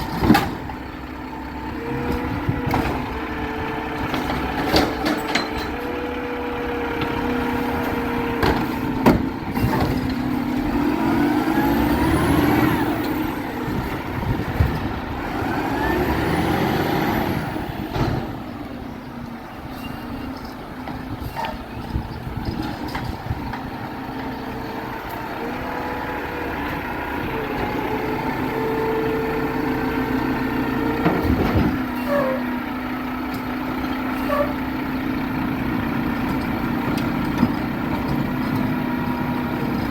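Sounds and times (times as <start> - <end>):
garbage truck engine running: 0.0 - 39.9.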